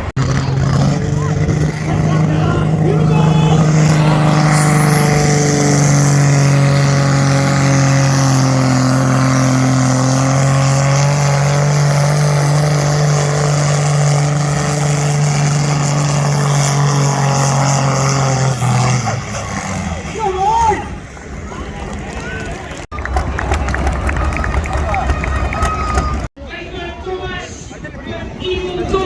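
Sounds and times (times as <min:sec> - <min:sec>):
high whine: 0:00.0 - 0:20.2
tractor engine revving under load: 0:00.0 - 0:20.2.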